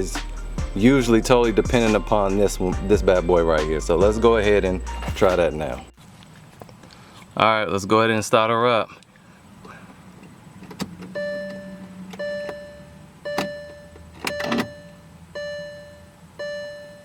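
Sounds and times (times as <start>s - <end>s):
ignition clicks: 10.2s - 15.0s
dashboard warning chime dinging: 11.0s - 17.0s.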